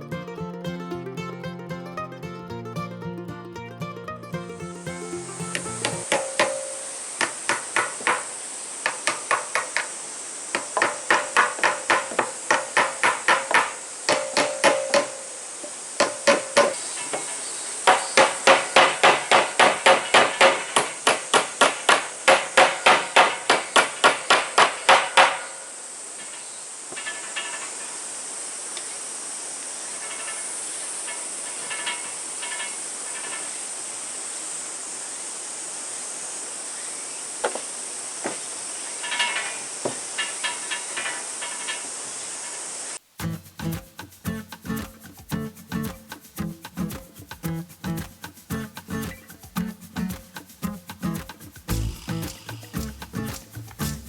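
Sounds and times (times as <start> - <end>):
steady high hiss: 0.0 - 54.0
hammer striking wood: 6.1 - 8.3, 10.6 - 15.2, 16.0 - 16.8, 17.9 - 25.6.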